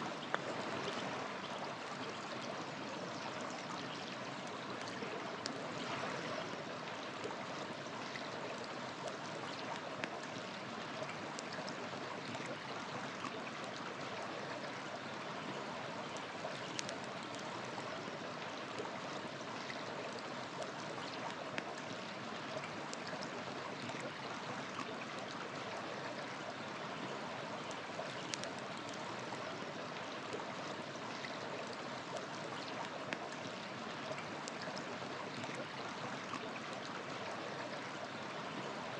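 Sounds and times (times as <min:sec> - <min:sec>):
river water flowing: 0:00.0 - 0:38.9
wood fire crackling: 0:28.2 - 0:29.0.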